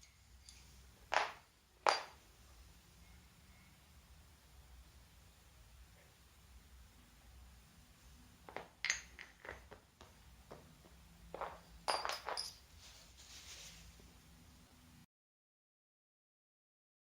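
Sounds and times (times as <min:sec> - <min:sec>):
small hard objects clinking: 0:11.3 - 0:12.7.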